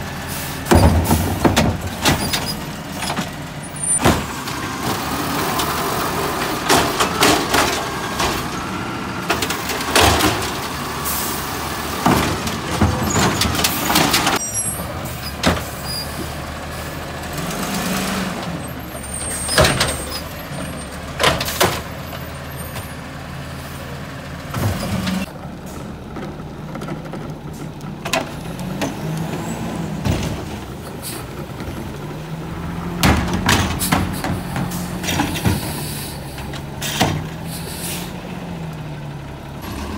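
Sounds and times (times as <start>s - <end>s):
garbage truck engine running: 0.0s - 39.9s
plastic carts banging: 6.3s - 8.6s, 9.3s - 10.7s, 11.9s - 14.4s.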